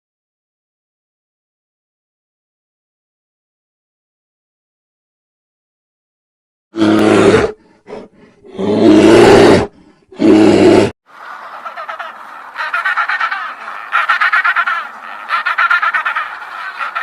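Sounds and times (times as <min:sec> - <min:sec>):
big cat roaring: 0:06.8 - 0:10.9
waterfowl honking: 0:11.1 - 0:17.0.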